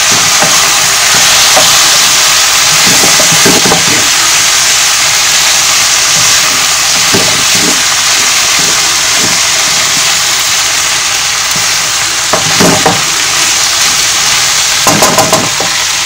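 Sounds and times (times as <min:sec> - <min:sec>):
spoon scraping a pan: 0:00.0 - 0:04.1
food sizzling in a wok: 0:00.0 - 0:16.0.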